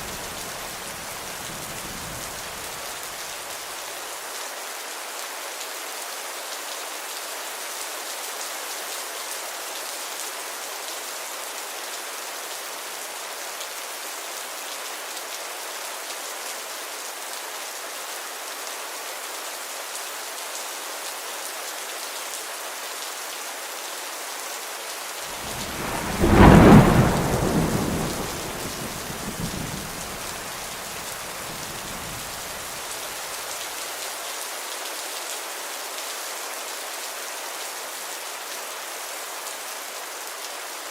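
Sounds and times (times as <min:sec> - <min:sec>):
steady rain falling: 0:00.0 - 0:40.9
thunder rumbling: 0:25.3 - 0:32.8.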